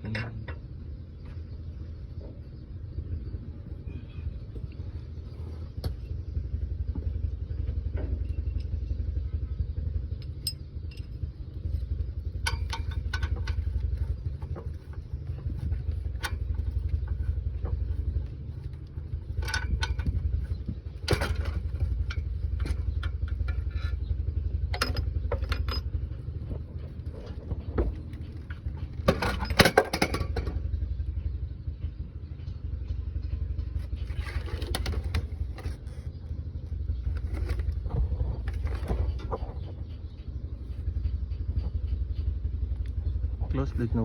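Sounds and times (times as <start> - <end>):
engine idling: 0.0 - 44.0
metallic knocks and clanks: 12.3 - 30.7.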